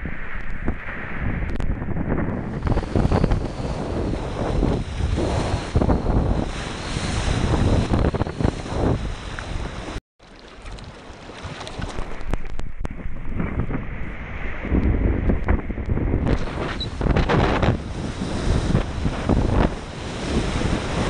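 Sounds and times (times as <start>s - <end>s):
wind buffeting microphone: 0.0s - 21.0s
water rushing and splashing: 2.5s - 12.9s.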